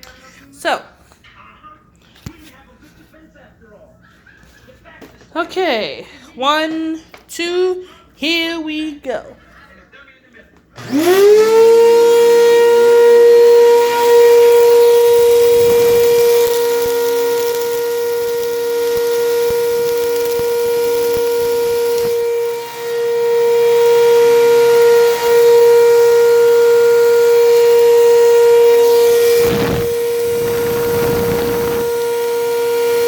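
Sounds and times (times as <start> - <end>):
vacuum cleaner running: 10.8 - 33.0.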